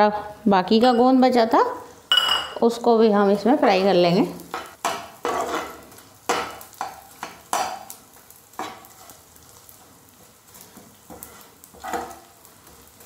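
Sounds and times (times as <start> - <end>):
gum sizzling in a wok: 2.7 - 13.0
metal spoon scraping a pan: 4.5 - 7.9, 8.5 - 13.0.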